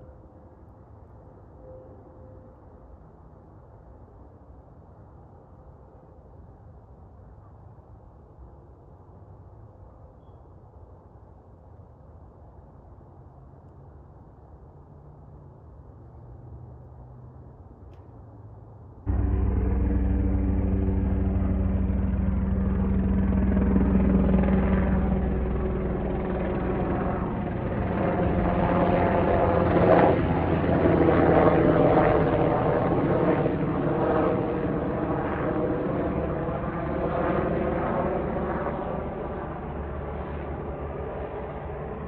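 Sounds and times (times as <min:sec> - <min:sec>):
helicopter flying by: 0:19.1 - 0:42.0.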